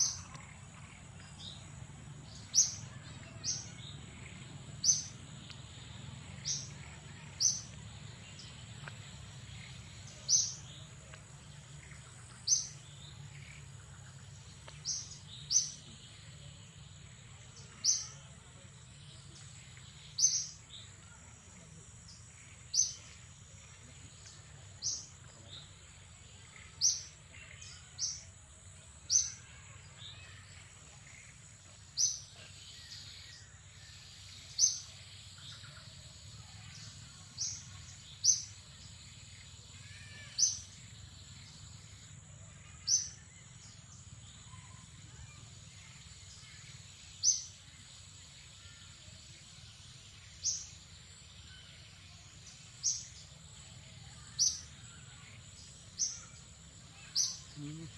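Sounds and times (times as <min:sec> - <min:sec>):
bird chirping: 0:00.0 - 0:18.6, 0:19.2 - 0:57.9.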